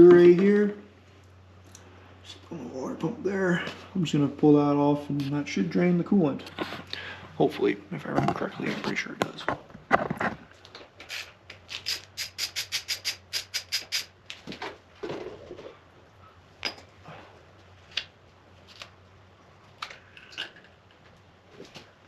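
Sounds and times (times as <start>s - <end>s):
ratchet wrench clicking: 11.9s - 14.1s.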